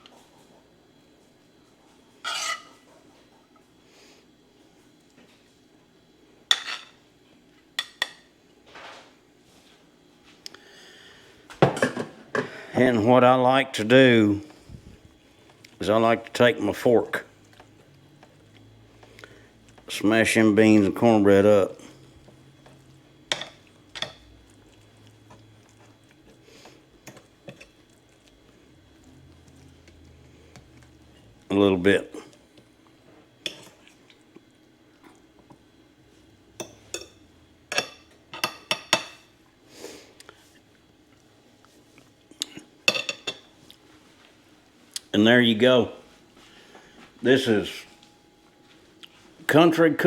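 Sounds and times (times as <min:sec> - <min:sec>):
utensil scraping dish: 0:02.2 - 0:02.7.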